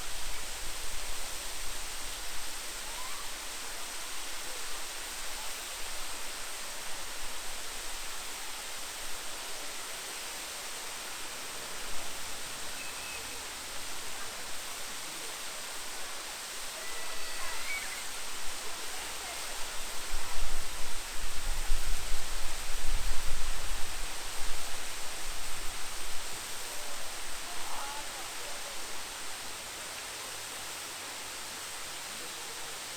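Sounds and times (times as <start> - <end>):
waterfall rushing: 0.0 - 22.8.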